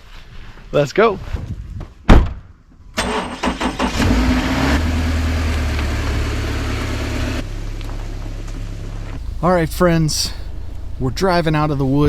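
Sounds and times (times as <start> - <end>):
car engine idling: 5.1 - 12.0.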